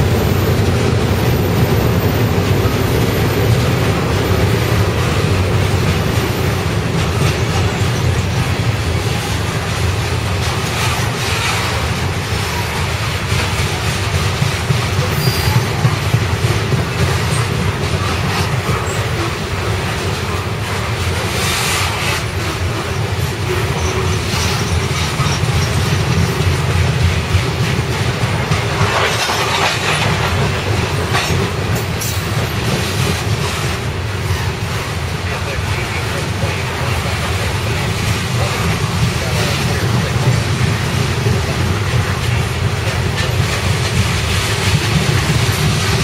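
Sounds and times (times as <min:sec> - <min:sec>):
train wheels rumbling on rails: 0:00.0 - 0:46.0
wheels clicking over rail joints: 0:00.0 - 0:46.0.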